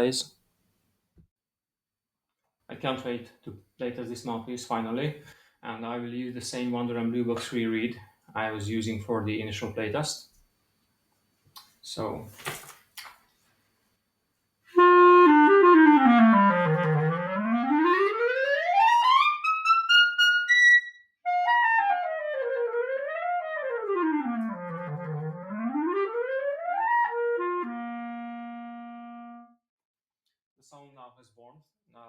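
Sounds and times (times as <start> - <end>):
clarinet playing fast runs: 14.8 - 29.5.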